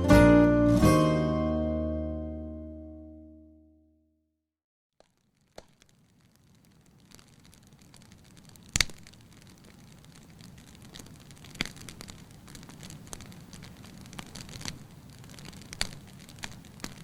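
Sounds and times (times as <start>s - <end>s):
bonfire crackling: 5.0s - 17.0s
sharp fire pops: 5.0s - 17.0s.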